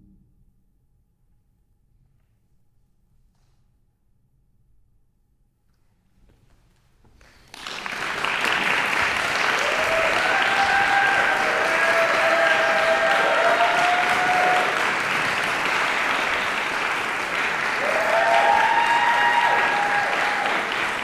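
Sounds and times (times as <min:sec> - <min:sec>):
audience applause: 0:07.4 - 0:21.0
voices cheering: 0:07.7 - 0:21.0.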